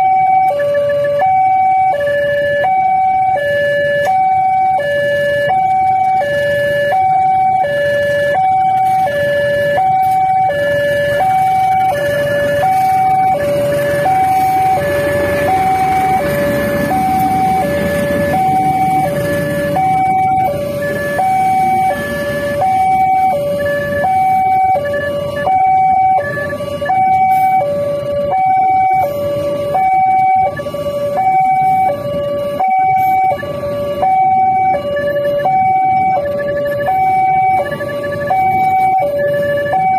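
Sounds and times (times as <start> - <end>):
level crossing two-tone alarm: 0.0 - 39.9.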